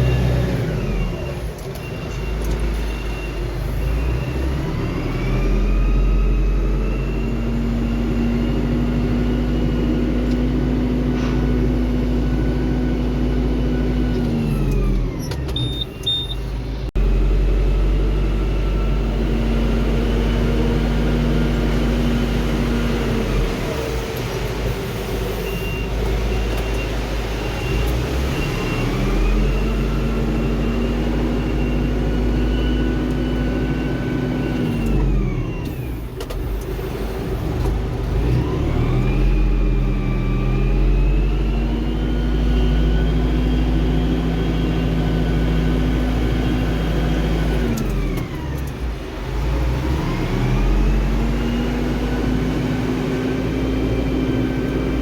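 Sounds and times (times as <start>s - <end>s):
tractor engine revving: 26.0s - 55.0s.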